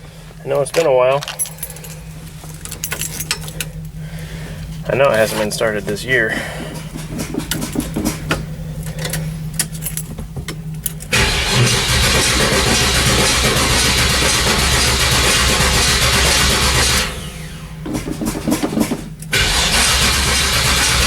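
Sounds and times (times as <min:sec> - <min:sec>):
engine starter cranking: 0:10.8 - 0:21.0.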